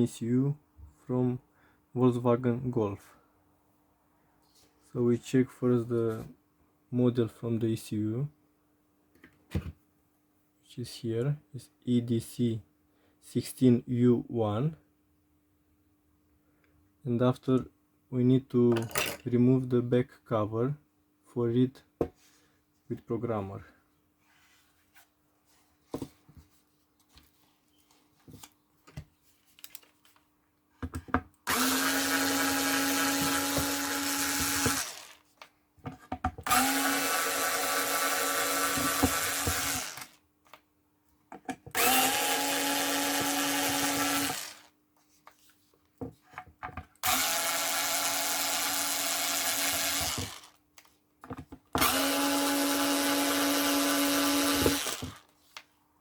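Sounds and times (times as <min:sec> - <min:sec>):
power screwdriver motor: 0:31.5 - 0:35.2, 0:36.5 - 0:40.2, 0:41.7 - 0:44.7, 0:47.0 - 0:50.5, 0:51.8 - 0:55.2.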